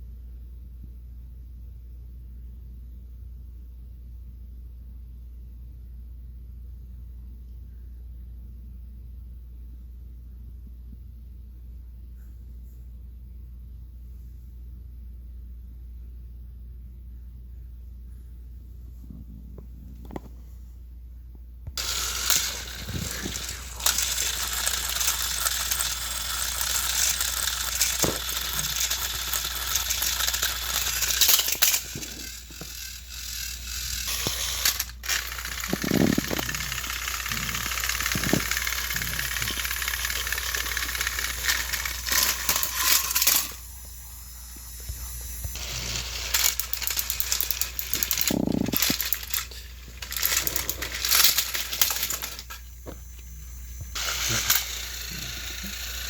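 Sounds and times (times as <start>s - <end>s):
toy train motor whirring: 21.8s - 56.0s.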